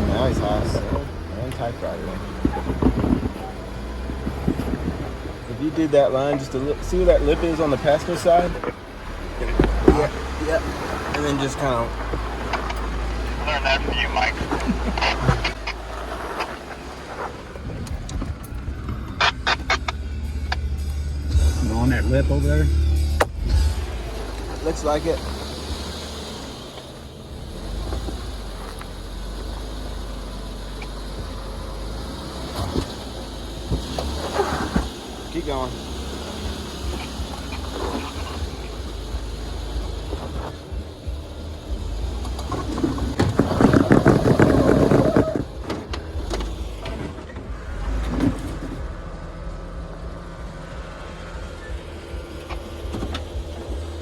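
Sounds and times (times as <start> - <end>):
engine low rumble: 0.0 - 54.0
clicks and knocks over rock: 42.4 - 47.0.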